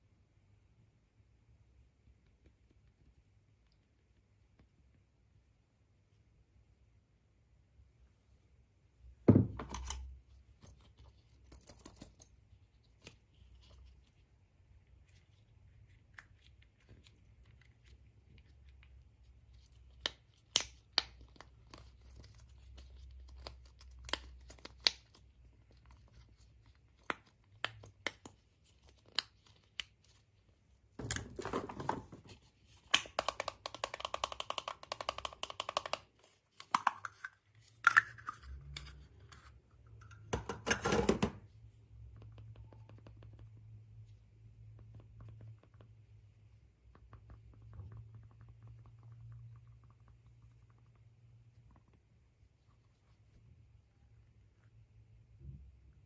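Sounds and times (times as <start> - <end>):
packaging taps and clicks: 32.9 - 37.3.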